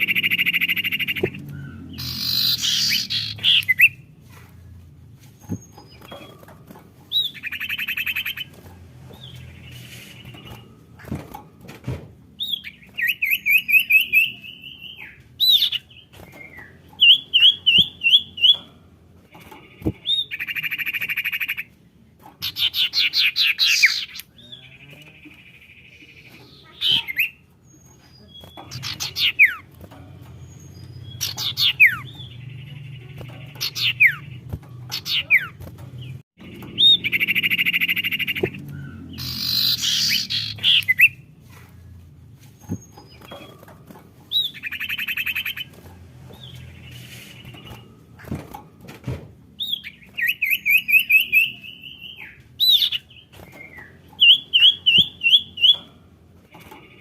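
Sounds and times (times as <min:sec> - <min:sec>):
bird whistling: 0:00.0 - 0:04.0, 0:36.8 - 0:41.2
bird buzzy chattering: 0:00.0 - 0:04.1, 0:26.2 - 0:41.9.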